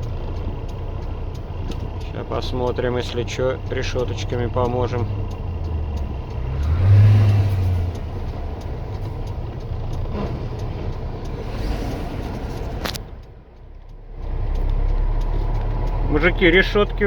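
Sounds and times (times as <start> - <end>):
diesel truck engine running: 0.0 - 17.0
road noise: 0.0 - 17.0
sharp click: 6.6 - 16.1.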